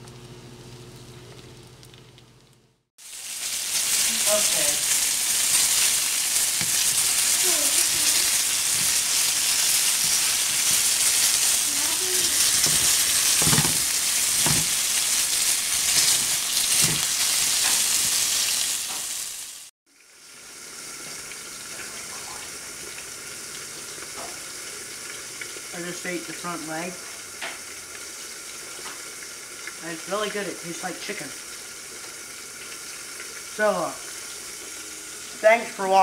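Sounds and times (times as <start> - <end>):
meat sizzling in butter: 3.0 - 36.0
tongs knocking pan: 12.4 - 15.0, 15.9 - 17.9.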